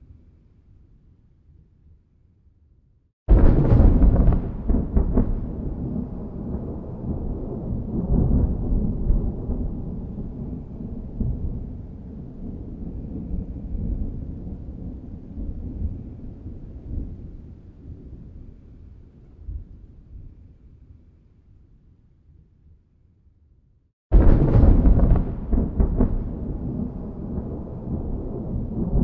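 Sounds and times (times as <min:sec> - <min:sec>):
thunder crack and rumble: 0:03.3 - 0:18.3, 0:24.1 - 0:29.0.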